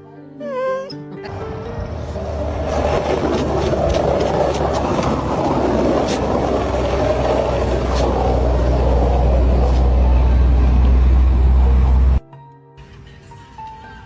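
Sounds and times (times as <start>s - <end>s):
vehicle rumble: 1.3s - 12.2s.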